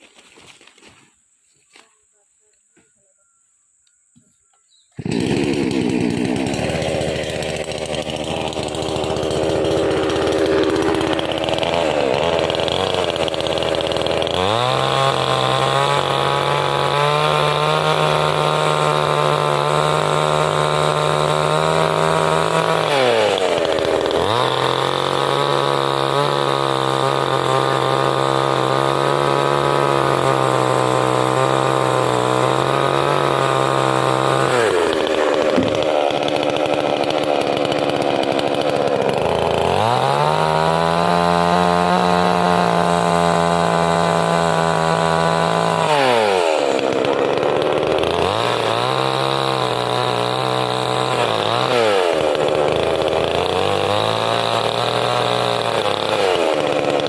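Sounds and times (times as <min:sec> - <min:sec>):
chainsaw cutting wood: 0:00.0 - 0:01.0, 0:04.8 - 0:57.0.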